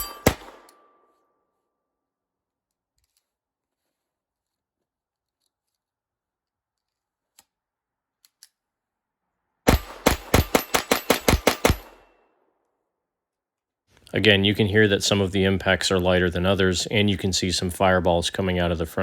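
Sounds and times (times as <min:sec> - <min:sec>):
steel target plates ringing: 0:00.0 - 0:01.0
pistol shots: 0:00.0 - 0:01.1, 0:09.7 - 0:12.2.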